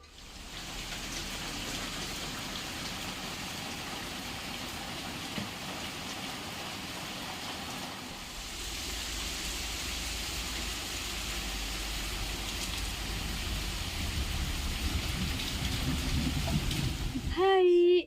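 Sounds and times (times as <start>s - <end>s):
heavy rain falling: 0.0s - 17.6s
low rumble: 8.1s - 17.4s.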